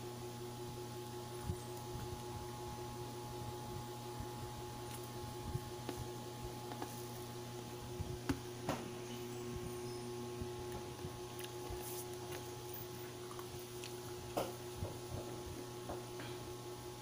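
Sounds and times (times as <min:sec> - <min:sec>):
steady low hum: 0:00.0 - 0:17.0
chewing and mouth sounds: 0:10.6 - 0:14.6.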